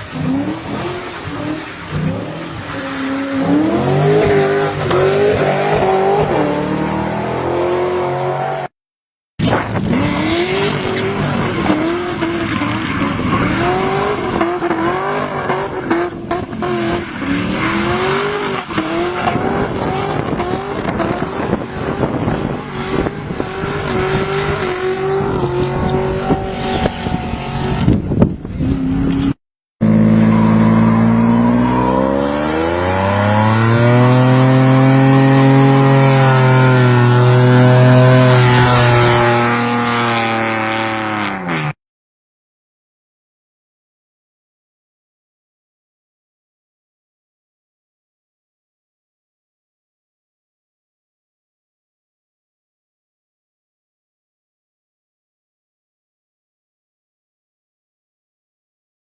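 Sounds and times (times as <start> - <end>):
car engines revving hard: 0.0 - 8.7, 9.4 - 41.8.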